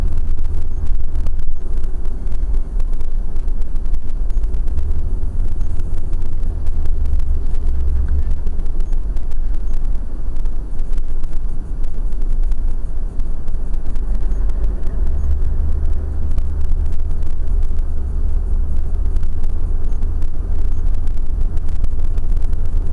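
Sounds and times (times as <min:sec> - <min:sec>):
car driving rumble inside cabin: 0:00.0 - 0:22.9.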